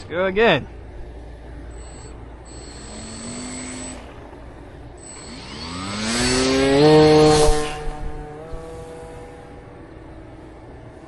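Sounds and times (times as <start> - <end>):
electric motor and propeller whine: 0.0 - 11.0.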